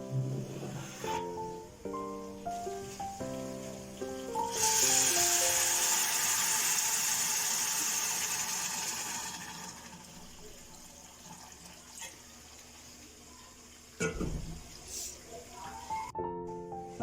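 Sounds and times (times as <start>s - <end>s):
water hissing: 0.2s - 10.6s.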